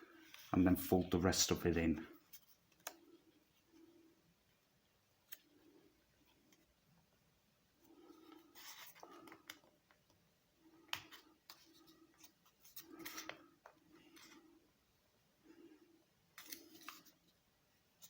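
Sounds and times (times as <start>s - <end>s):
paper clicks and scratches: 8.2s - 9.7s, 10.9s - 14.4s, 16.4s - 17.2s.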